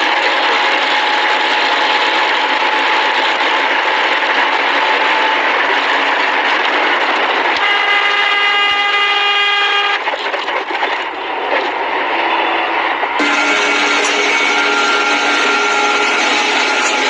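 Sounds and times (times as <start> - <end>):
heavy background noise: 0.0 - 17.0
loud horn blast: 7.6 - 10.2, 13.2 - 17.0.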